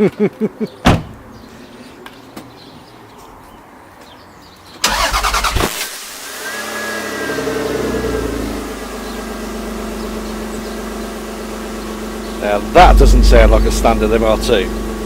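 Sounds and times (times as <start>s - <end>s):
starter motor cranking: 4.8s - 6.6s
engine revving and idling: 6.2s - 15.0s.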